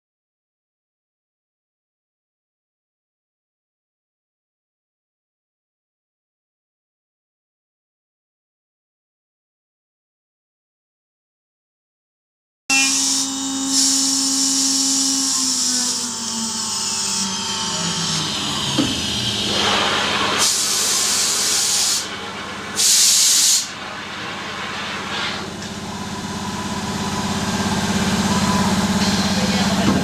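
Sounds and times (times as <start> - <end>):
router machine whine: 12.7 - 22.9, 25.4 - 30.0
steady machine hum: 12.7 - 30.0
rushing hisses of air: 19.5 - 22.1, 22.8 - 23.8.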